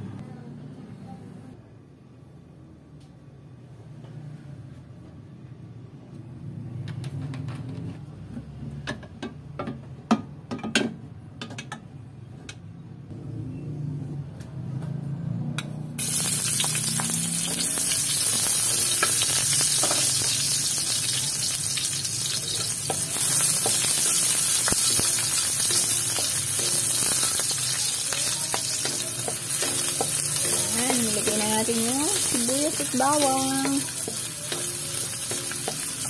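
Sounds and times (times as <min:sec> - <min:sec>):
onions sizzling in hot oil: 0:16.0 - 0:36.0.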